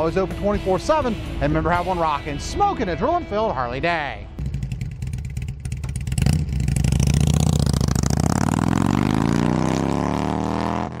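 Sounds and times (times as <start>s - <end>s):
motorcycle engine accelerating: 4.4s - 11.0s.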